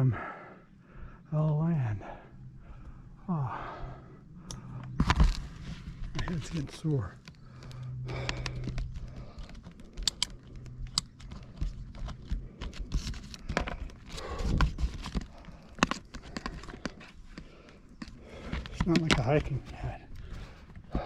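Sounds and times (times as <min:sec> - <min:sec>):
low steady hum: 0:00.0 - 0:21.0
gear rustling and clicking: 0:04.4 - 0:21.0.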